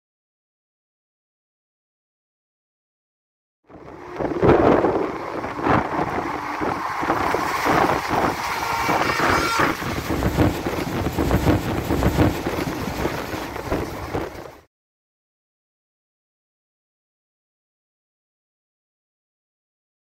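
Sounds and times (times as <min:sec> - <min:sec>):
wheel clacks: 0:03.7 - 0:14.6
passing train rushing by: 0:03.7 - 0:14.7
rushing wind: 0:03.7 - 0:14.7
train wheels on rails: 0:03.7 - 0:14.7
wind buffeting microphone: 0:03.7 - 0:14.7.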